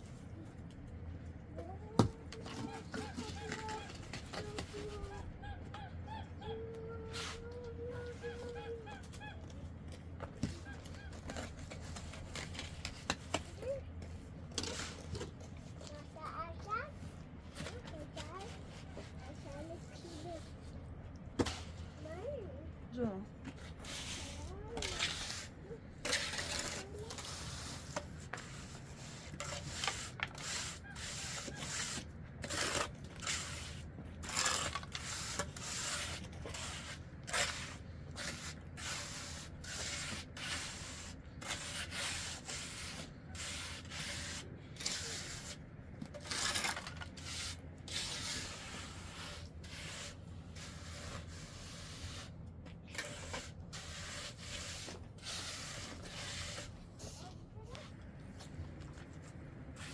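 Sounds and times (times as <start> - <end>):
low steady hum: 0.0 - 59.9
rough scraping strokes: 10.4 - 16.9, 23.5 - 59.9.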